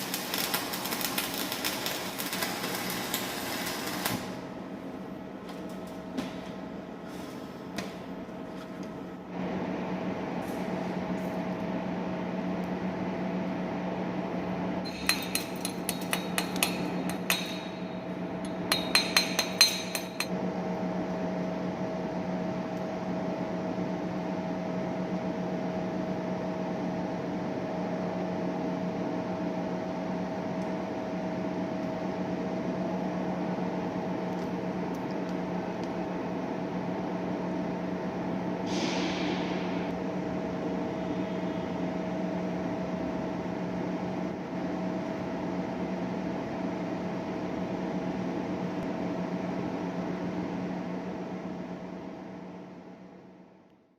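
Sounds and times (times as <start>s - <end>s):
steady machine hum: 0.0s - 53.9s
metal-on-metal taps: 14.9s - 17.8s, 18.4s - 20.3s.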